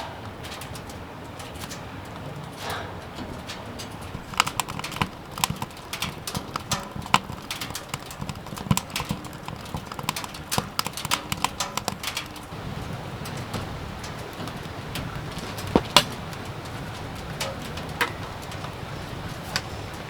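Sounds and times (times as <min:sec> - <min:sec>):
light clicks and knocks: 0:00.5 - 0:20.0.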